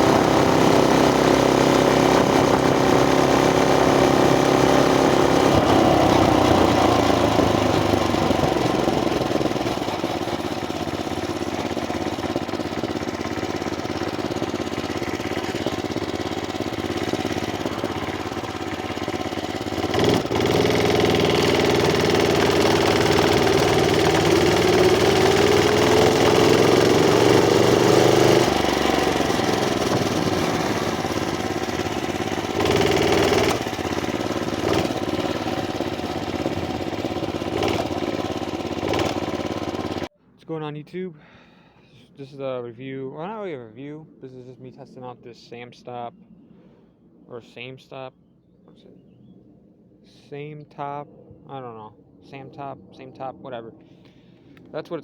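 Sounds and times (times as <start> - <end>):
mini bike engine revving: 0.0 - 40.1.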